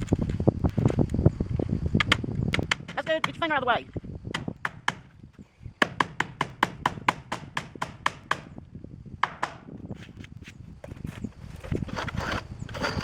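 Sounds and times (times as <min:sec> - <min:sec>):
hammer striking nail: 0:04.3 - 0:05.1, 0:05.8 - 0:08.6, 0:09.2 - 0:09.7.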